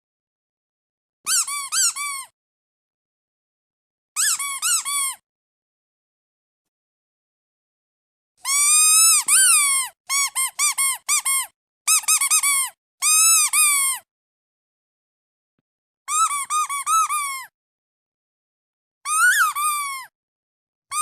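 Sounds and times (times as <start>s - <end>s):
squeaky toy squeaking: 1.3s - 2.3s, 4.2s - 5.2s, 8.4s - 14.0s, 16.1s - 17.5s, 19.1s - 20.1s.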